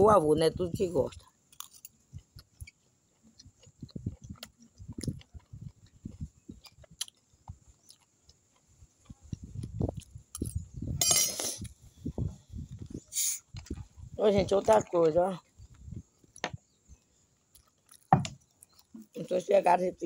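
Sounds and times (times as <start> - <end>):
person chewing: 1.1 - 10.7, 15.4 - 19.2
spoon scraping on a plate: 11.0 - 11.6.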